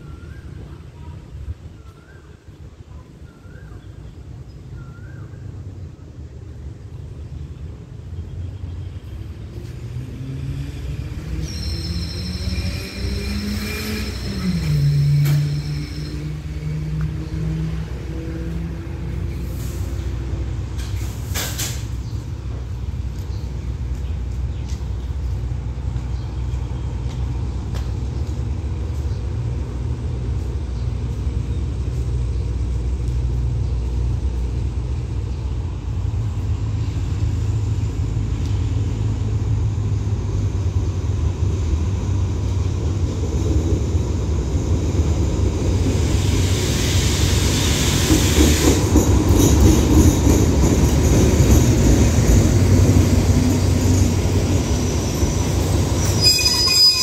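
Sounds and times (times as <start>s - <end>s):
diesel train engine rumble: 0.0s - 57.0s
train wheels rolling: 9.1s - 57.0s
train brakes hissing: 10.4s - 17.0s, 19.3s - 22.0s, 45.8s - 50.5s, 52.8s - 57.0s.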